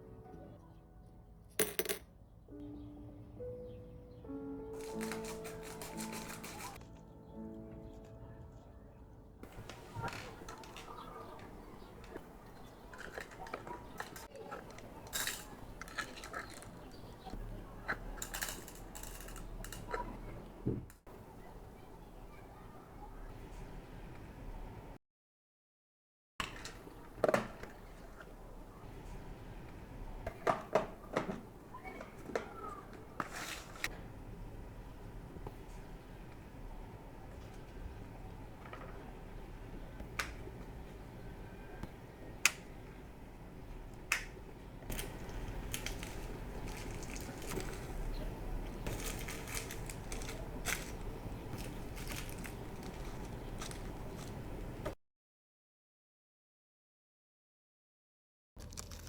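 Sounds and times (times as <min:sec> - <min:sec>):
bead packaging clicks and rustles: 0:04.8 - 0:07.0, 0:09.4 - 0:19.9, 0:44.9 - 0:54.9, 0:58.6 - 0:59.0.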